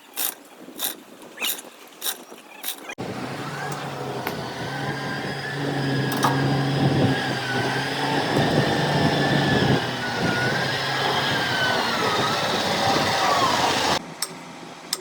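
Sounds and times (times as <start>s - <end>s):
engine idling: 3.0s - 14.3s.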